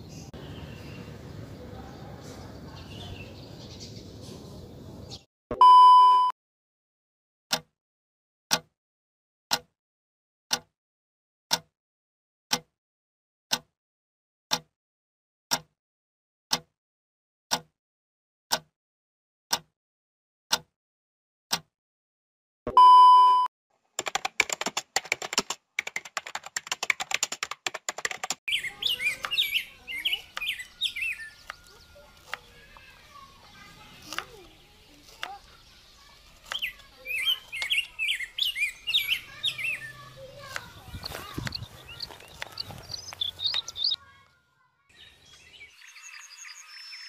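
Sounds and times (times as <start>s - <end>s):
short beep: 5.5s - 6.3s, 22.7s - 23.5s
keyboard typing clicks: 24.0s - 28.4s
sharp ticks: 24.0s - 29.6s, 30.2s - 30.7s, 39.3s - 44.0s.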